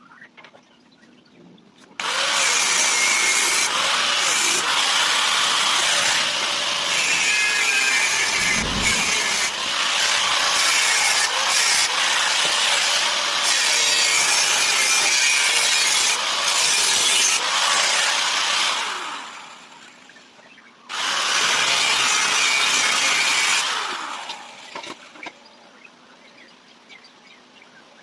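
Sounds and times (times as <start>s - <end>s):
power tool grinding: 2.0s - 19.8s.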